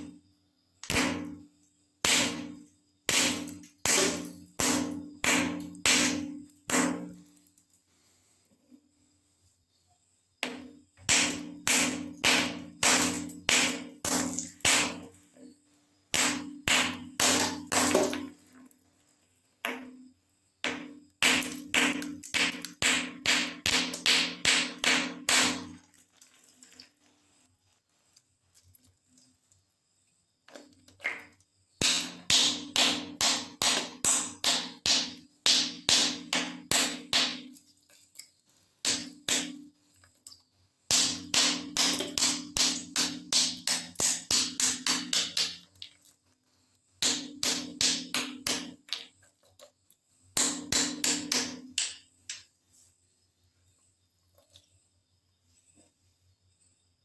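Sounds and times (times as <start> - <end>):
ice balloons being knocked: 16.2 - 18.4.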